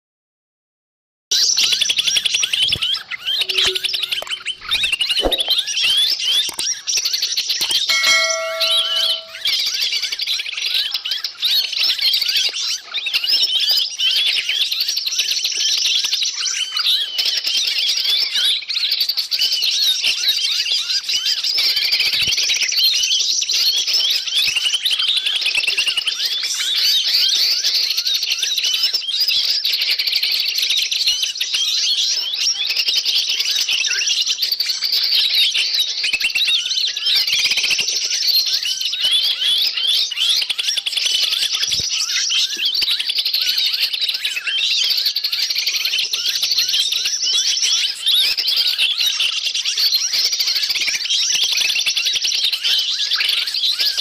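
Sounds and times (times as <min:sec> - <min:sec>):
short whistled note: 0:07.9 - 0:09.4
small birds chirping and chattering: 0:10.9 - 0:54.0.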